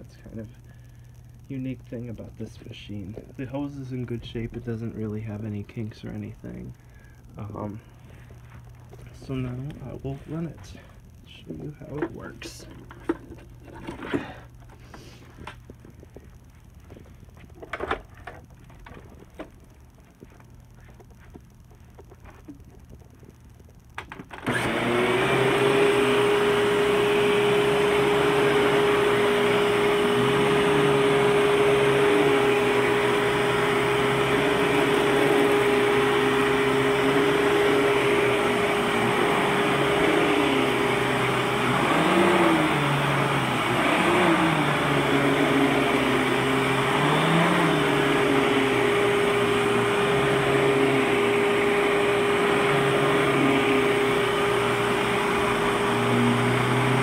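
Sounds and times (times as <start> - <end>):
vacuum cleaner motor whining: 24.0 - 57.0.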